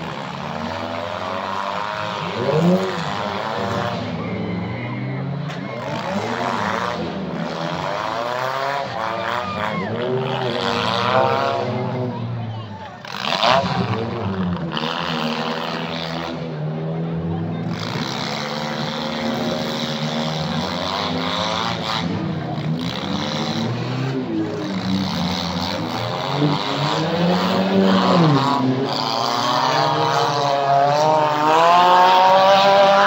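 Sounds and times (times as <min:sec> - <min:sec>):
car engines revving: 0:00.0 - 0:33.0.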